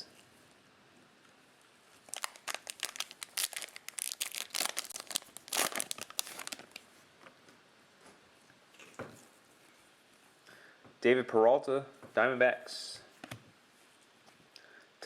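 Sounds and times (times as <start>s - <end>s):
cellophane wrapper crinkling and tearing: 1.9s - 6.9s.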